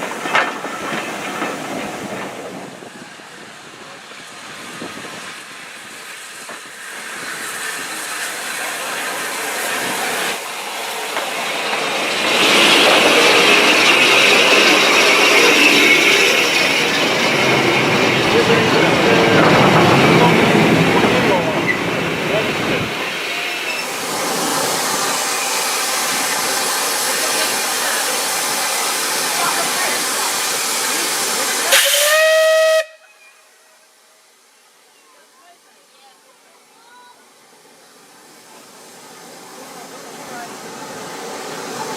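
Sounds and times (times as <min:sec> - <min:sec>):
steam hiss: 0:00.0 - 0:41.9
steam train approaching: 0:00.0 - 0:41.9
locomotive whistle blast: 0:31.7 - 0:33.5.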